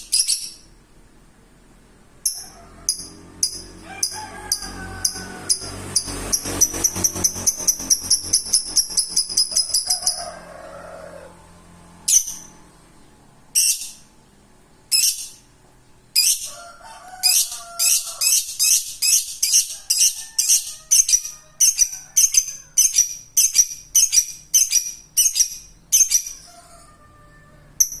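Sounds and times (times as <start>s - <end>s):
lovebird chirping: 0.0s - 0.8s, 2.2s - 4.2s, 5.1s - 10.3s, 12.0s - 14.1s, 14.8s - 15.5s, 16.1s - 16.5s, 17.2s - 26.5s.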